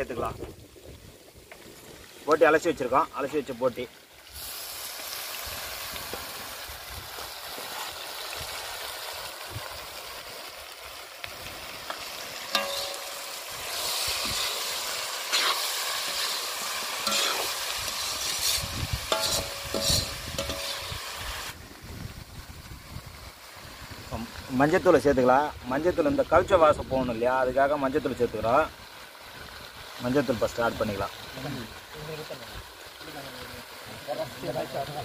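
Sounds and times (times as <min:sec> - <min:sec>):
meat sizzling in hot oil: 0:00.0 - 0:35.0
metal ladle scraping pan: 0:12.4 - 0:21.0.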